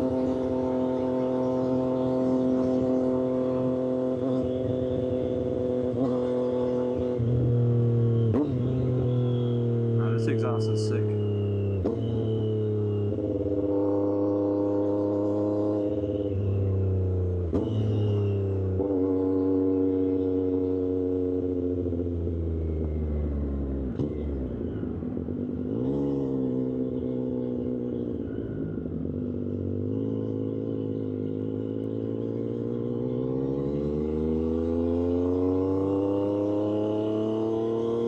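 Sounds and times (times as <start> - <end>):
motorcycle engine: 0.0 - 38.0.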